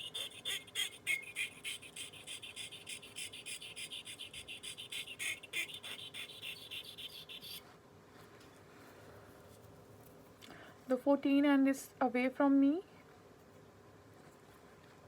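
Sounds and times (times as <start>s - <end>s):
sharpening stone scraping blade: 0.0s - 7.6s.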